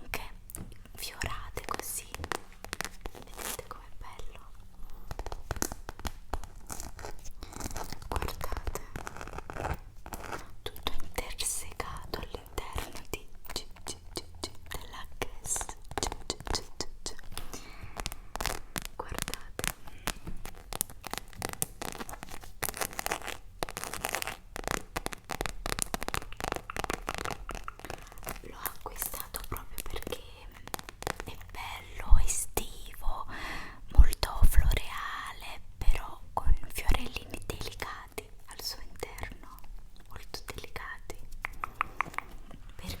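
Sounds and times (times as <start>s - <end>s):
crackly tapping and scratching: 0.0s - 33.3s, 34.0s - 43.0s
packaging rustling and scratching: 4.8s - 11.0s, 17.3s - 28.5s
small taps and clicks: 41.4s - 42.6s.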